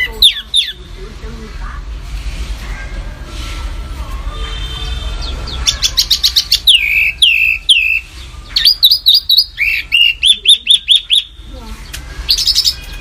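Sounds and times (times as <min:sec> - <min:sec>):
songbird singing: 0:00.0 - 0:01.0, 0:04.8 - 0:13.0.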